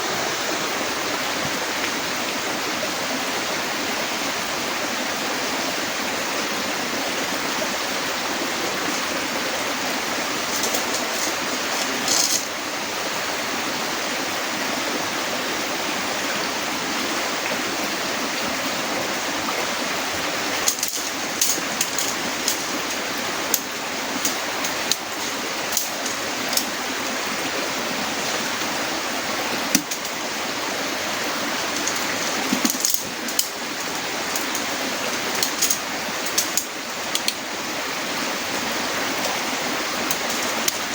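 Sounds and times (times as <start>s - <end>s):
heavy rain falling: 0.0s - 40.9s
sharp taps and knocks: 29.7s - 30.1s.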